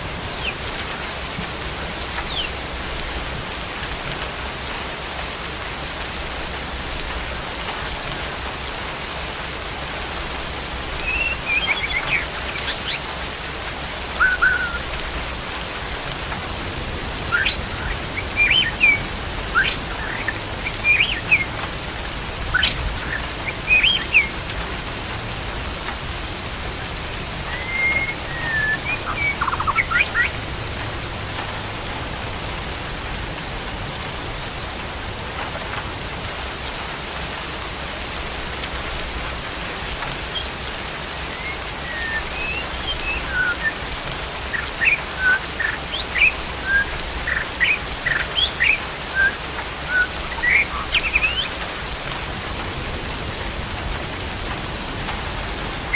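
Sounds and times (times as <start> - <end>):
rain hiss: 0.0 - 55.9
birds chirping and whistling: 0.2 - 0.7, 2.2 - 2.6, 11.0 - 15.3, 17.2 - 21.7, 22.4 - 24.4, 27.4 - 30.4, 39.8 - 40.6, 41.3 - 51.6.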